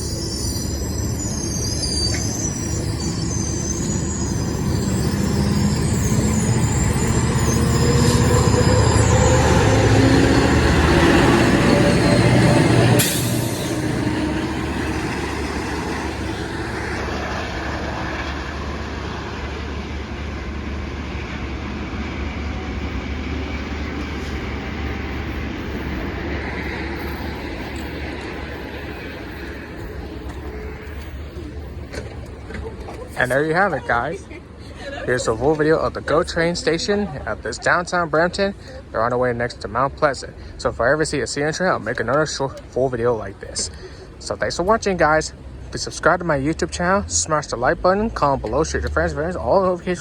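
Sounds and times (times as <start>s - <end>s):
train wheels squealing: 0.0s - 33.9s
train rumbling: 0.0s - 50.0s.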